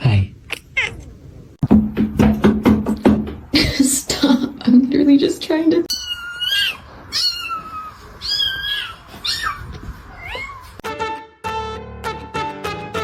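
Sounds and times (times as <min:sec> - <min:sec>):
cat meowing: 0:00.4 - 0:01.2, 0:05.9 - 0:10.8.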